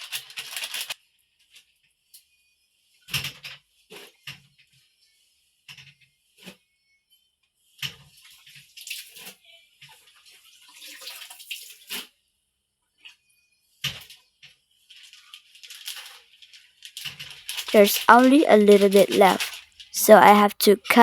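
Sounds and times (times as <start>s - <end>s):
water sloshing in a basin: 10.6s - 11.8s.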